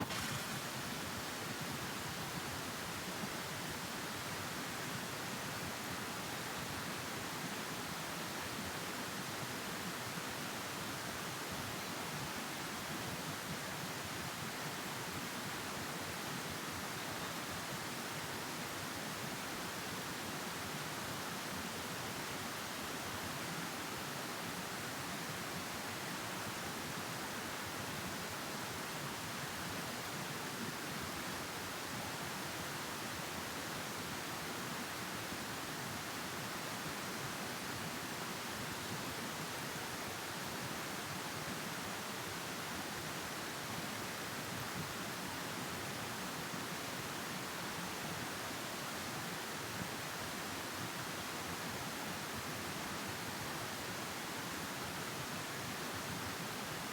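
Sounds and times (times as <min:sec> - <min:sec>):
steady hiss: 0:00.0 - 0:04.9.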